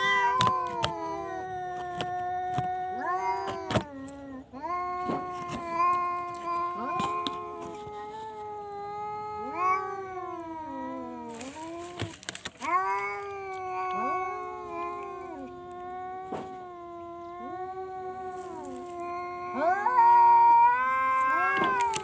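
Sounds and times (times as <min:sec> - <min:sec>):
cat yowling: 0:00.0 - 0:22.0.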